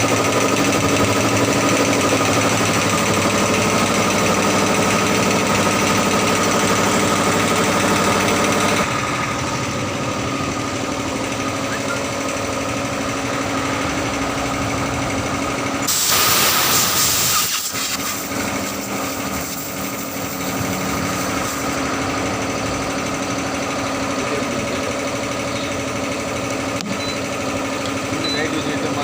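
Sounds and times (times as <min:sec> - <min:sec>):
loud burst of hiss: 0:15.9 - 0:21.7.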